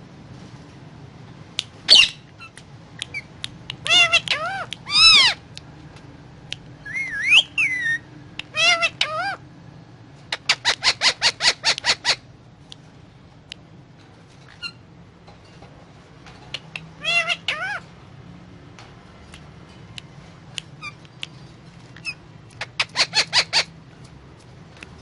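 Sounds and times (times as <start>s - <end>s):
parakeet squawking: 1.9s - 5.4s, 6.8s - 9.4s, 10.3s - 12.3s, 16.5s - 18.0s, 20.6s - 23.8s.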